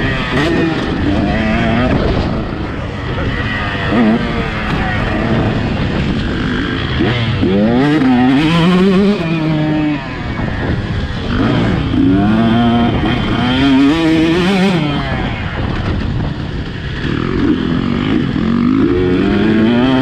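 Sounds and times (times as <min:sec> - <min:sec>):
motocross bike engine revving: 0:00.0 - 0:16.1, 0:16.8 - 0:20.0
wind noise: 0:00.0 - 0:20.0
track noise: 0:01.1 - 0:16.1.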